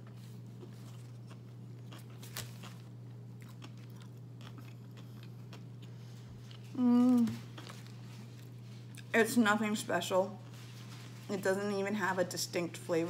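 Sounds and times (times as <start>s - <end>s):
person chewing: 0.0s - 9.1s
steady low hum: 0.0s - 13.0s.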